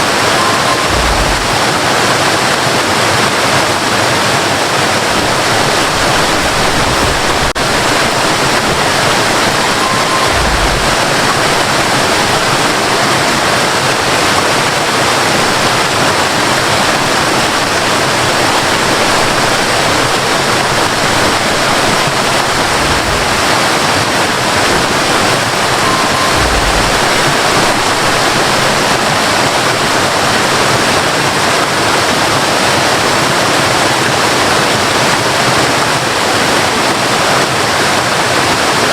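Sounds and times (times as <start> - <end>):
waterfall roaring: 0.0 - 38.9
low rumbles: 0.8 - 2.1, 4.9 - 30.1.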